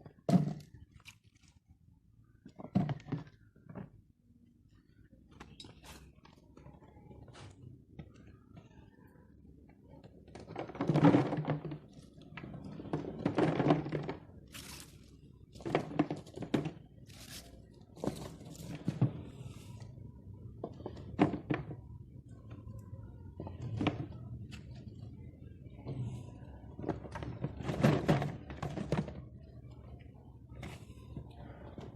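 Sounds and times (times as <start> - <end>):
vegetables crunching and scraping: 13.2 - 16.4, 17.0 - 18.9.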